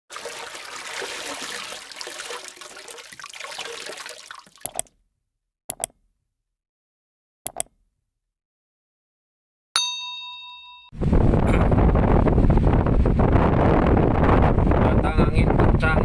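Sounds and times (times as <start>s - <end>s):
gusting wind: 11.0s - 16.0s.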